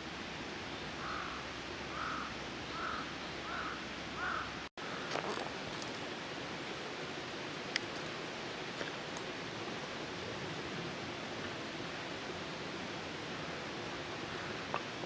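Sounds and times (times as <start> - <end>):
steady background hiss: 0.0 - 15.0
crow cawing: 1.0 - 5.0.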